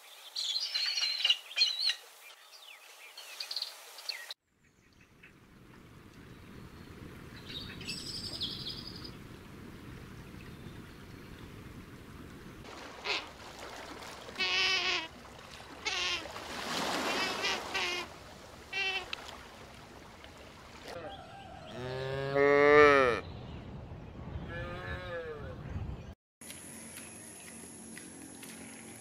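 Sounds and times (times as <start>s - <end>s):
sea otter squealing: 14.4s - 15.1s, 15.8s - 16.3s, 17.1s - 18.1s, 18.7s - 19.1s
cow mooing: 21.6s - 23.2s.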